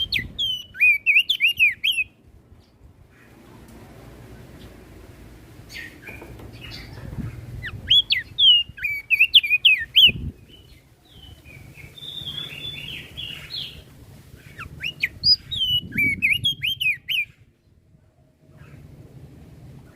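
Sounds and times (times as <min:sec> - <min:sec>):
bird whistled song: 0:00.0 - 0:02.2, 0:05.7 - 0:13.8, 0:14.4 - 0:17.5.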